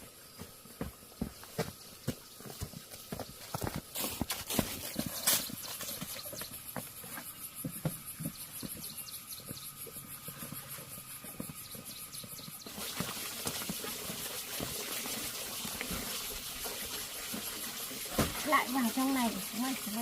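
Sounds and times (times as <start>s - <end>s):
water running: 12.5s - 20.0s.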